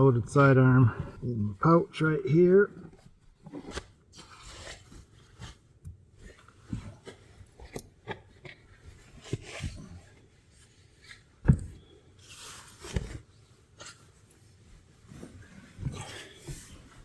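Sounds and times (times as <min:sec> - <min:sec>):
sleeping bag fabric rustling: 0:08.6 - 0:17.0.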